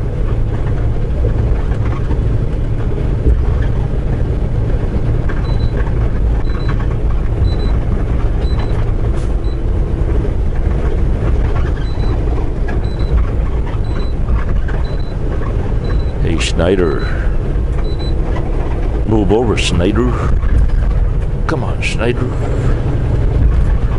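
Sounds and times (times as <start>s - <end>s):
truck engine and road noise: 0.0s - 23.9s
short high dashboard beeps: 5.4s - 5.8s, 6.4s - 7.8s, 8.4s - 9.6s, 11.7s - 12.2s, 12.8s - 15.2s, 15.8s - 18.2s.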